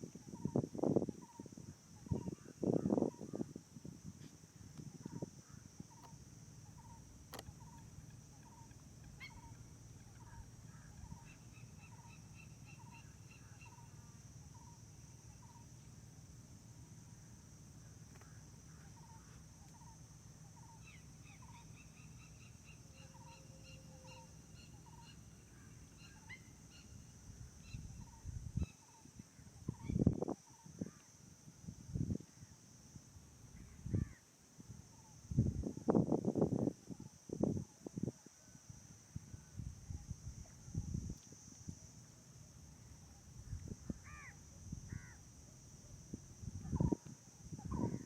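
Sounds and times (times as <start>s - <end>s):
steady high hiss: 0.0s - 48.0s.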